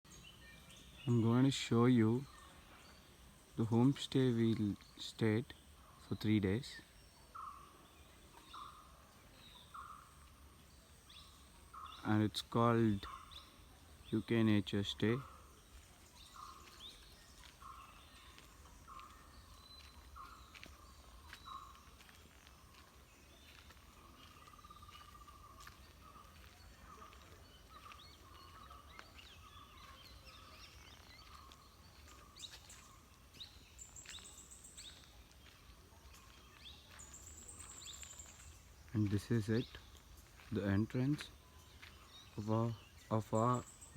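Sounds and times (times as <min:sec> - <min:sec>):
birds calling: 0:00.1 - 0:43.9.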